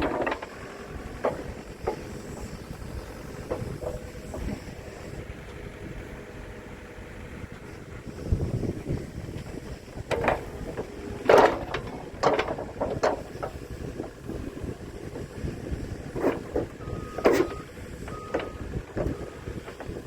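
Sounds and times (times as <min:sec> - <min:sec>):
machine clanks and knocks: 0:00.0 - 0:00.6, 0:01.2 - 0:04.6, 0:10.0 - 0:14.2
excavator engine rumble: 0:00.0 - 0:20.0.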